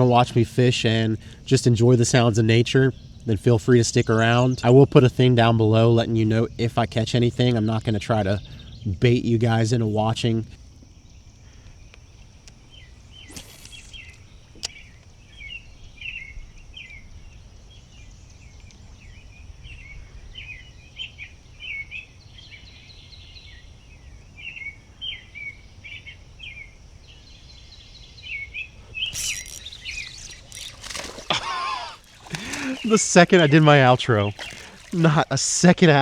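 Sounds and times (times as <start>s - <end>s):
wild birds chirping: 0.0s - 36.0s
rustling: 28.8s - 33.2s.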